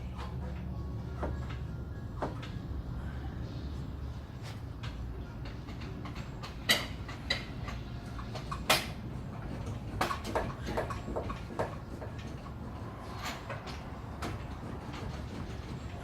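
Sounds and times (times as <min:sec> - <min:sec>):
metal clanks and knocks: 0:04.8 - 0:16.0.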